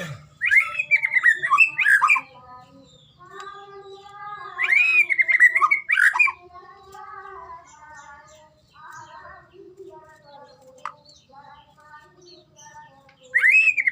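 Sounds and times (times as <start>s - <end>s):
bird singing whistled phrases: 0.4s - 2.3s, 4.4s - 6.4s, 13.2s - 13.9s.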